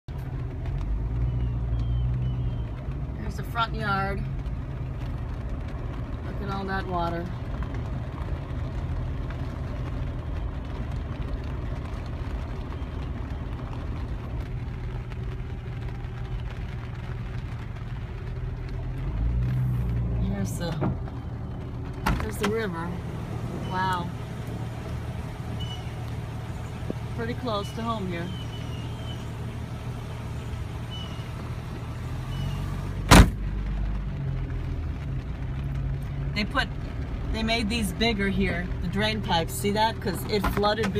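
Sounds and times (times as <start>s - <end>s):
car engine running: 0.0s - 40.9s
sharp thump: 33.1s - 33.4s.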